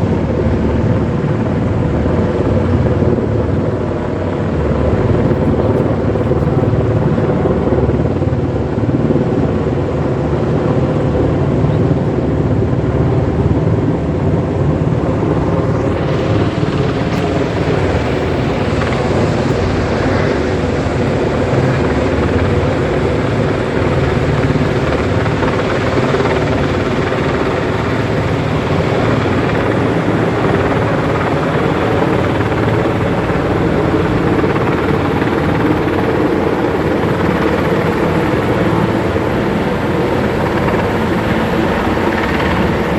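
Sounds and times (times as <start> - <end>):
helicopter rotor and engine: 0.0 - 42.9.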